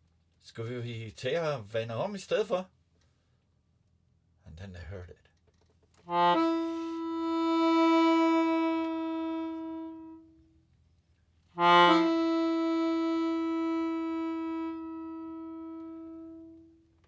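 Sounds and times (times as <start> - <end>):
wind instrument long held notes: 6.1 - 10.3, 11.6 - 16.7.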